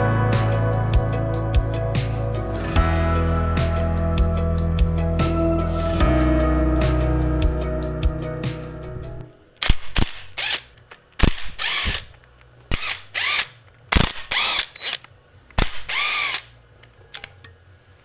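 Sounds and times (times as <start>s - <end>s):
power tool spinning: 10.0s - 16.5s.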